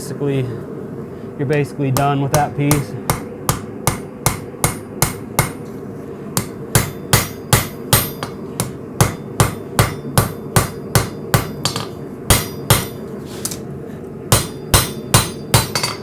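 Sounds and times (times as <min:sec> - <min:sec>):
hammer striking steel on anvil: 0:02.0 - 0:05.8, 0:06.4 - 0:13.1, 0:14.3 - 0:16.0.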